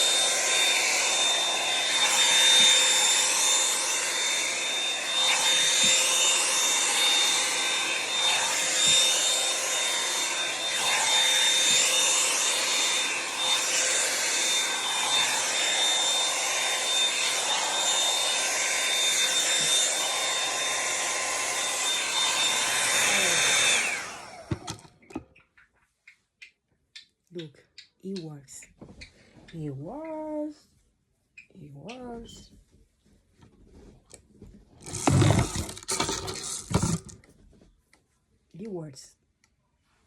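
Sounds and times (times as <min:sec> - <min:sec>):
hair dryer brush whirring: 0:00.0 - 0:25.1, 0:34.8 - 0:37.2.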